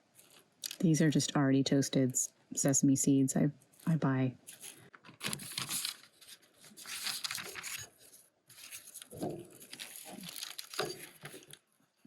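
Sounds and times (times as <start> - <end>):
package crinkling and rustling: 4.5 - 11.7.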